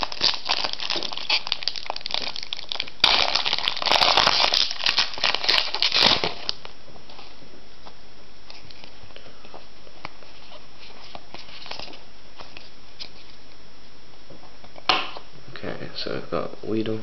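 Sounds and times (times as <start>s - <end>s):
wrapper torn open and crumpled: 0.0s - 6.7s
foil wrapper crinkling: 0.0s - 7.3s, 10.0s - 13.4s.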